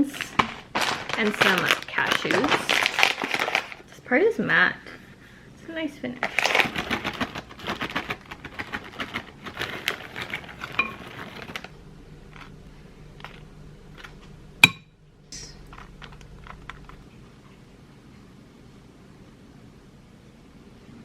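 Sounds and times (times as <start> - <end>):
dishes and utensils clattering: 10.1 - 11.6
loud dish clink: 14.6 - 14.9.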